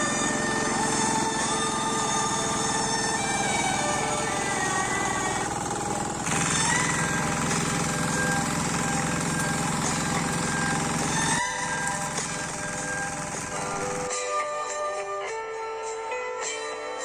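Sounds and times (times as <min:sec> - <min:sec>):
small engine running: 0:00.0 - 0:14.1.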